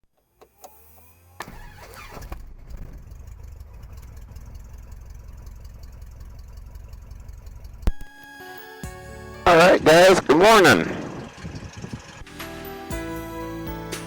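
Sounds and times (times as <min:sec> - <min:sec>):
airplane engine idling: 0:03.0 - 0:12.6.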